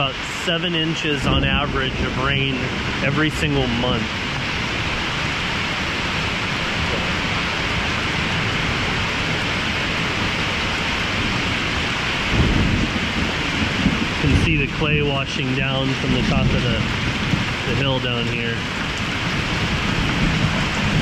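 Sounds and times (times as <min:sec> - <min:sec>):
heavy rain pouring: 0:00.0 - 0:21.0
thunder rumbling: 0:00.0 - 0:21.0.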